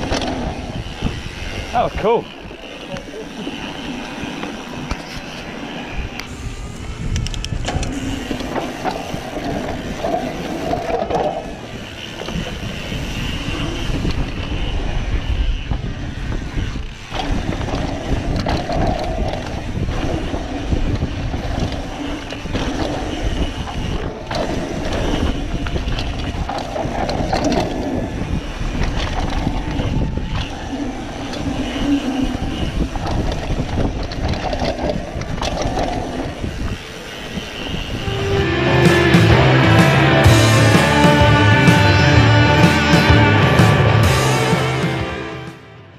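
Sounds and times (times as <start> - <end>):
bike rattling over ground: 0.0 - 38.3
bike tyres rolling on dirt: 0.0 - 38.3.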